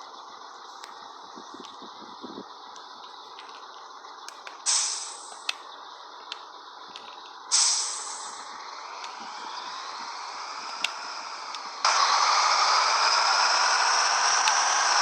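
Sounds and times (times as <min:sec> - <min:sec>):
air brake hiss: 0:04.7 - 0:05.4, 0:07.5 - 0:08.5.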